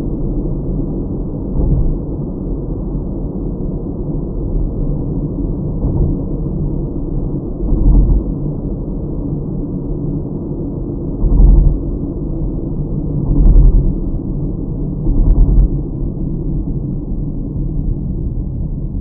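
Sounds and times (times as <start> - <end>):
car engine and tyres rumbling: 0.0 - 19.0
low bumps: 1.5 - 2.1, 5.7 - 6.6, 7.6 - 8.3, 11.2 - 12.0, 15.0 - 15.9.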